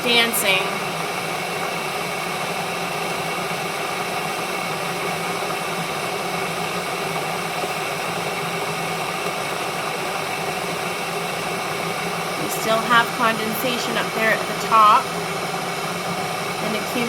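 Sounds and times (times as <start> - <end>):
electric kettle hissing and humming: 0.0 - 17.0.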